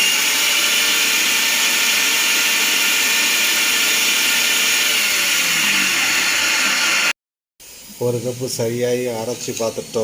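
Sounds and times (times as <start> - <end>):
mixer grinder whirring: 0.0 - 7.2.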